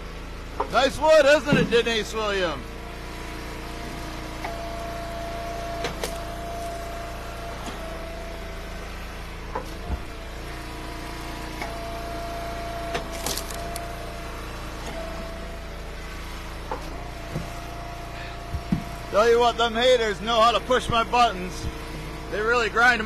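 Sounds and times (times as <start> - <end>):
log splitter engine running: 0.0 - 23.0
firewood cracking and splitting: 12.9 - 14.0
wood pieces dropping: 13.1 - 13.8.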